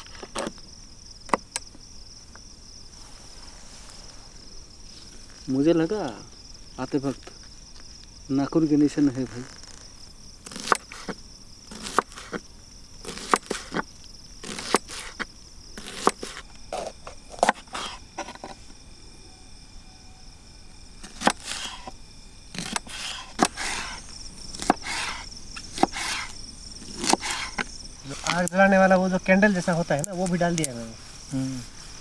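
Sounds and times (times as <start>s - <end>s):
crickets chirring: 0.0s - 32.0s
hatchet chopping firewood: 10.4s - 12.4s, 13.0s - 18.6s, 21.0s - 28.6s.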